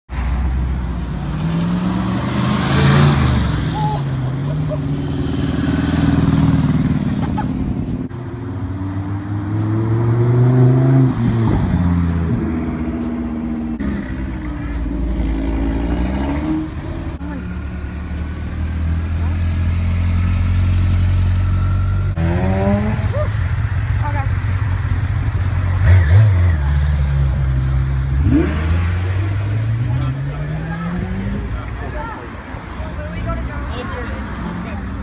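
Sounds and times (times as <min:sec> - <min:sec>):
car engines revving: 0:00.1 - 0:35.0.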